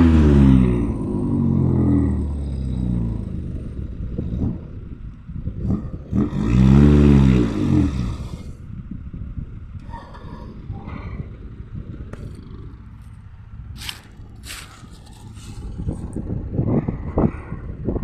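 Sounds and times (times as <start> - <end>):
truck diesel engine revving: 0.0 - 8.8.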